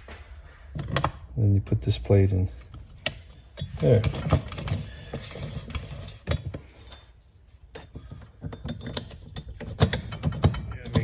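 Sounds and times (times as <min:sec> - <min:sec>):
metal parts clicking and clinking: 0:02.7 - 0:11.0.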